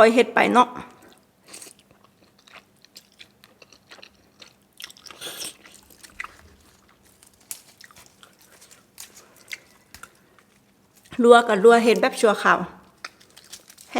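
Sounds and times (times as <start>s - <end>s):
chewing and biting food: 1.1s - 11.2s, 13.0s - 13.9s.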